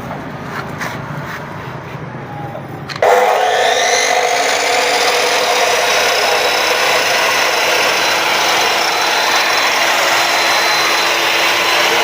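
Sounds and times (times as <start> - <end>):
cut-off saw motor running: 2.9 - 12.0.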